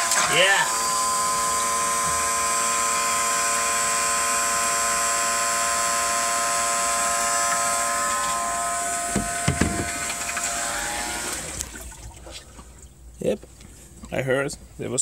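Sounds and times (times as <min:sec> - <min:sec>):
electric pump motor whining: 0:00.0 - 0:11.8
dull thumps: 0:09.1 - 0:10.0.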